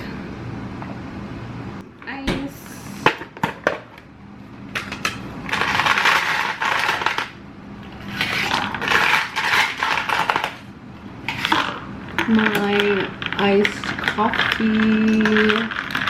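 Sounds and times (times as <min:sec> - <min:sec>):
ice cubes clinking in cup: 0:11.5 - 0:16.0.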